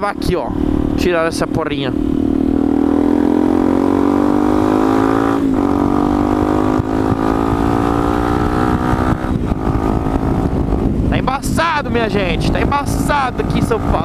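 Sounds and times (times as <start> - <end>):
motorcycle engine accelerating: 0.0 - 14.0
wind rumble on microphone: 0.0 - 14.0.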